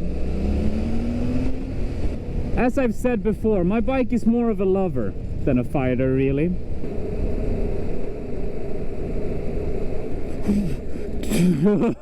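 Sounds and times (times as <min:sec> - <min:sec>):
road noise: 0:00.0 - 0:12.0
wind noise: 0:00.0 - 0:12.0
motorcycle engine running: 0:06.3 - 0:11.7.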